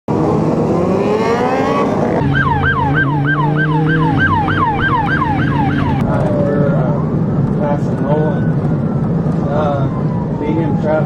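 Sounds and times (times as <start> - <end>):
police siren wailing and yelping: 1.2 - 6.0, 8.4 - 11.0.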